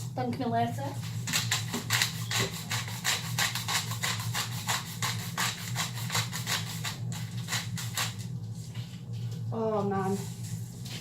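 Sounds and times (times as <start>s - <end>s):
pepper mill grinding: 1.2s - 8.3s.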